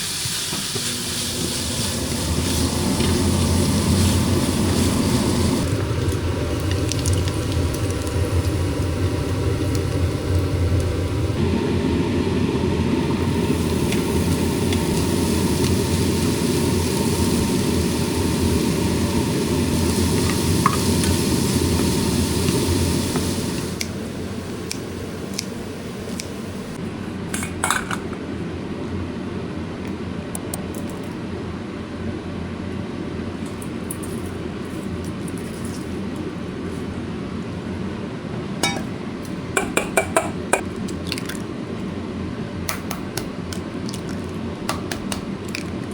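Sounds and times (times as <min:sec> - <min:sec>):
dishes and utensils clinking: 0:38.6 - 0:39.0.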